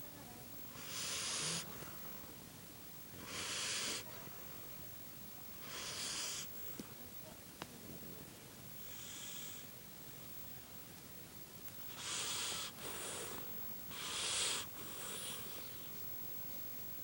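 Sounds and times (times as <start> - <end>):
dog snoring: 0.7 - 2.0, 3.2 - 4.2, 5.6 - 6.6, 8.8 - 9.7, 11.9 - 15.9.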